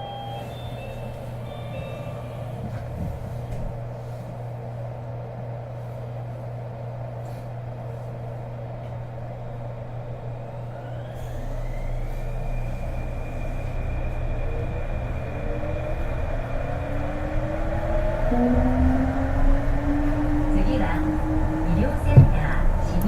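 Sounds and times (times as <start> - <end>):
cabin heater running: 0.0 - 23.0
train cabin rumble: 0.0 - 23.0
motor whine rising in pitch: 10.3 - 21.6.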